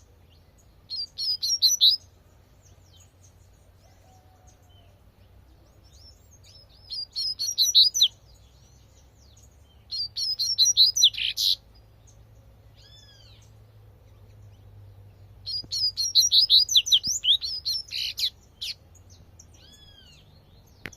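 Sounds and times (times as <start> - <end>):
bird twittering: 0.6 - 2.1, 5.9 - 14.6, 15.4 - 20.9.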